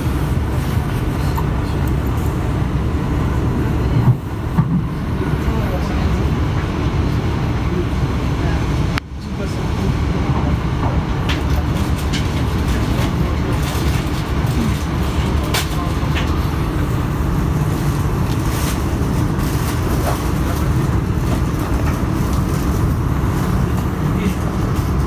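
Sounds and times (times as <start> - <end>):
train cabin low rumble: 0.0 - 25.0.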